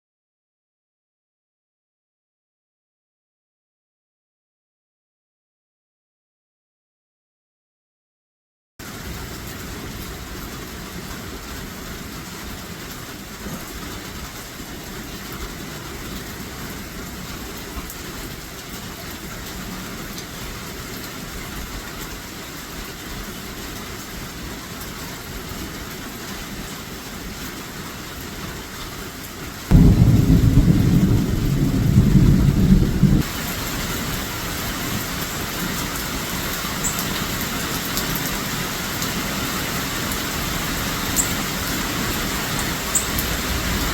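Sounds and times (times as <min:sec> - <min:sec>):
steady rain: 0:08.8 - 0:43.9
loud low rumble: 0:29.7 - 0:33.2, 0:43.0 - 0:43.9.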